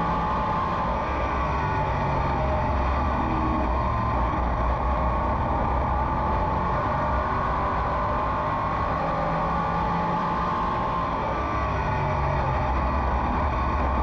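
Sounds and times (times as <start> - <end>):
race car engine running: 0.0 - 14.0.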